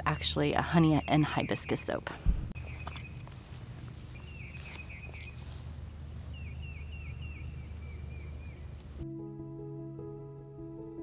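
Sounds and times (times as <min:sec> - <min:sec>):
low rumble of outdoor noise: 0:00.0 - 0:09.0
songbird chirping: 0:00.0 - 0:09.1.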